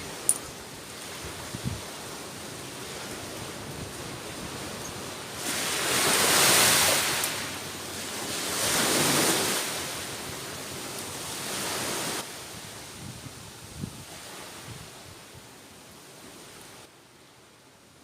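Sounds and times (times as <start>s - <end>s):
surf: 0.0s - 12.3s
gusting wind: 0.0s - 16.9s.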